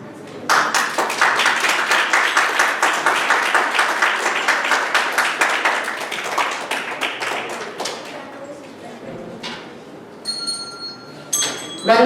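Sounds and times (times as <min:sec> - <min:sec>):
audience applauding: 0:00.5 - 0:08.6.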